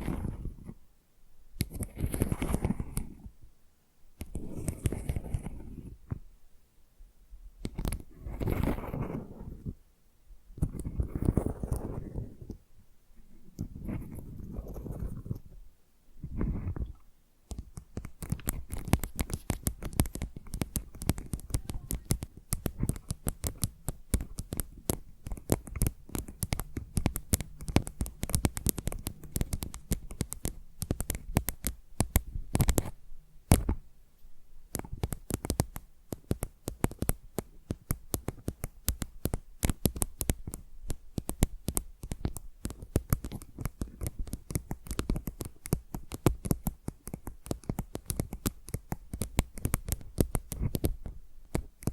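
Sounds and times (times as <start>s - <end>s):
fingernails scratching and tapping tile: 17.5s - 33.8s, 34.7s - 51.9s.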